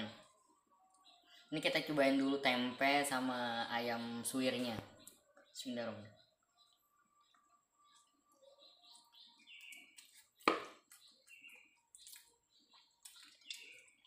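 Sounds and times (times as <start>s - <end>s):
faint high chirps: 0.0s - 3.1s, 4.6s - 14.0s
person chewing: 7.4s - 14.0s.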